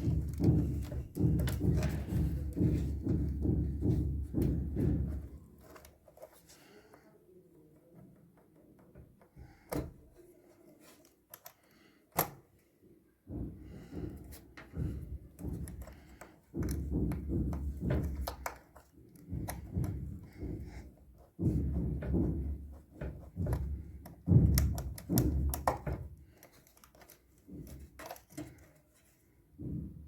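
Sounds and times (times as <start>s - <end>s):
dull thunks and knocks: 0.0s - 6.4s, 13.3s - 30.0s.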